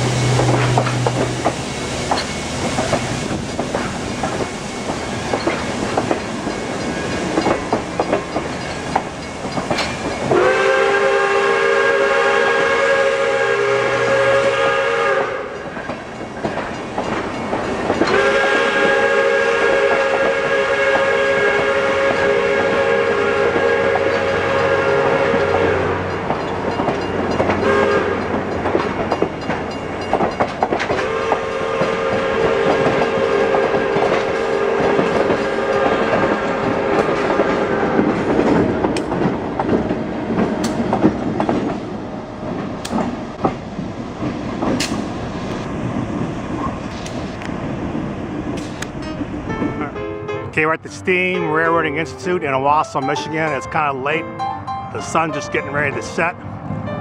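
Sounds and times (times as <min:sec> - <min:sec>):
steam locomotive wheels clattering: 0:00.0 - 0:49.9
train chime whistle: 0:10.2 - 0:15.8, 0:18.0 - 0:27.0, 0:27.6 - 0:28.3, 0:31.0 - 0:37.1, 0:50.8 - 0:56.4.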